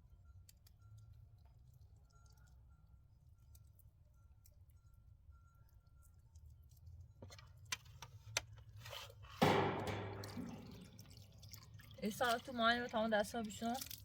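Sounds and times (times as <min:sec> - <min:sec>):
water splash: 0:09.4 - 0:12.4.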